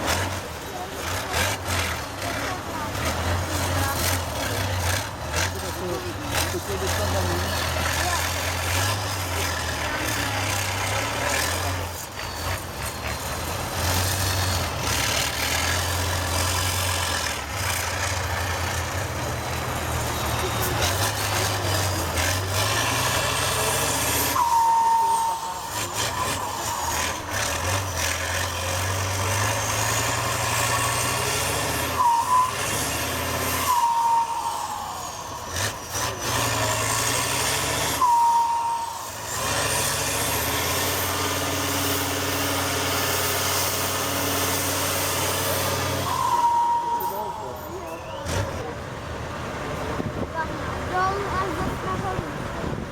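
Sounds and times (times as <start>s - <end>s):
heavy truck engine under load: 0.0s - 52.9s
short whistling note: 24.0s - 26.4s, 31.9s - 35.2s, 37.9s - 39.3s, 46.0s - 48.6s.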